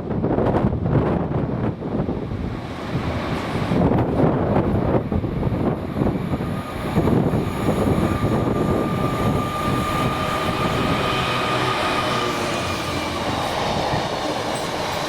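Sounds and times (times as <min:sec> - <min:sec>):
train rumbling by: 0:00.0 - 0:15.0
steady high whine: 0:06.0 - 0:15.0.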